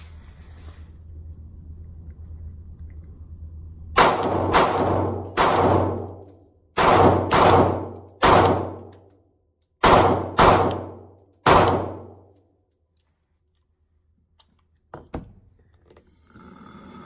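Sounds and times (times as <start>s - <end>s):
pistol shots: 4.0s - 6.2s, 6.8s - 8.9s, 9.8s - 12.1s.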